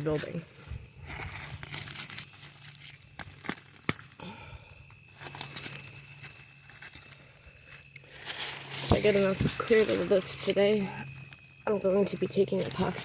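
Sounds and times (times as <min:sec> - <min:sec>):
insects chirping: 0:00.0 - 0:13.0
rustling vines: 0:00.0 - 0:13.0
vines snapping: 0:01.0 - 0:04.2.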